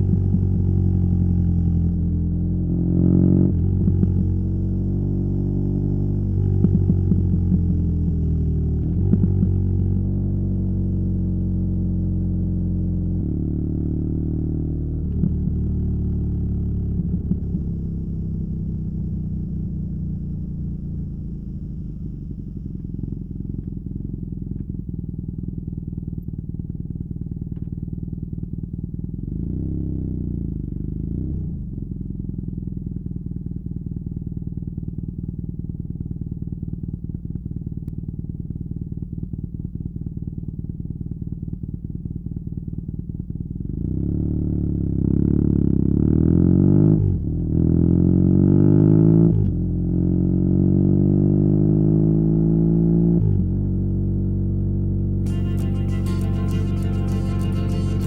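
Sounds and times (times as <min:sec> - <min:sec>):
motorcycle engine rev: 0:00.0 - 0:25.3
motorcycle engine idling: 0:14.7 - 0:29.4, 0:31.6 - 0:43.8.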